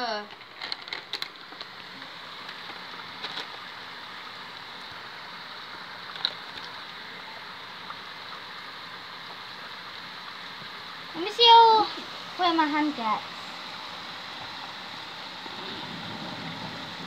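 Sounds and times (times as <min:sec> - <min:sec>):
heavy rain hissing: 0:00.0 - 0:17.0.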